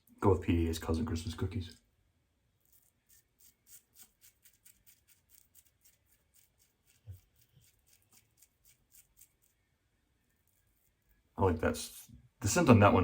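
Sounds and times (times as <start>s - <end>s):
razor scratching on face: 2.6s - 9.6s, 10.3s - 11.2s.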